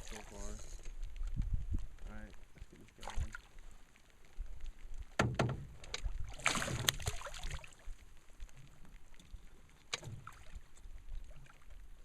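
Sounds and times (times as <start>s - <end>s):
water splash: 2.9s - 3.5s, 5.1s - 8.0s, 9.9s - 10.7s
sharp knocks in a boat: 5.1s - 7.2s, 9.9s - 10.4s.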